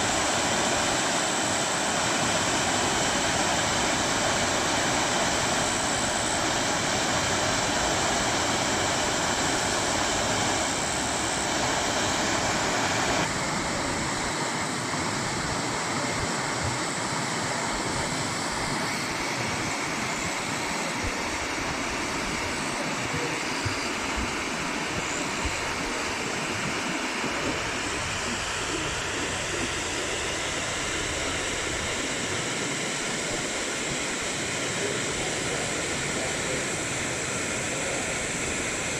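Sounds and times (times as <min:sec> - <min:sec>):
waterfall water pouring and splashing: 0:00.0 - 0:13.3.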